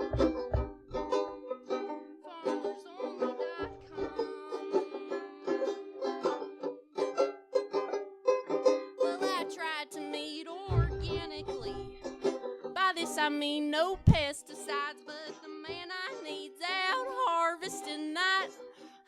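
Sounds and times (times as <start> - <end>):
country band playing: 0.0 - 1.4, 10.7 - 12.4
plucked string instruments: 0.0 - 19.0.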